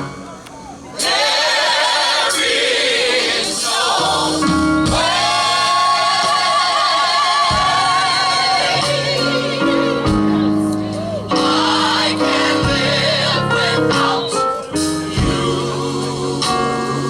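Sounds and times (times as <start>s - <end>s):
band accompaniment: 0.0s - 17.0s
gospel group singing: 0.8s - 17.0s.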